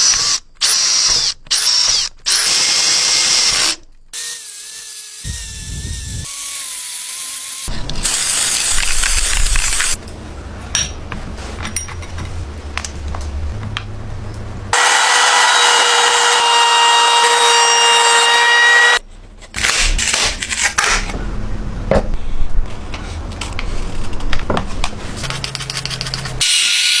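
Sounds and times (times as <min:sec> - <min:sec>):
power tool whining: 0:14.8 - 0:19.0.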